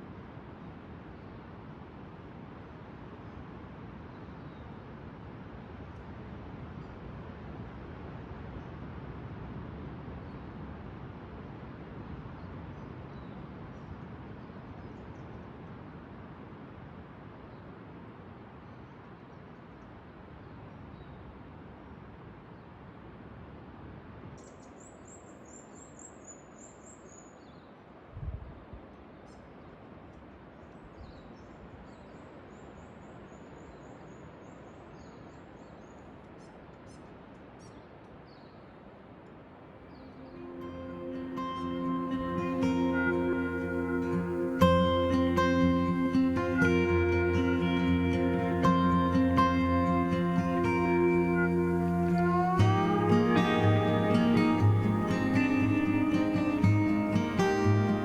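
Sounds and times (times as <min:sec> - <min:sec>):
bird singing: 0:39.9 - 0:58.0.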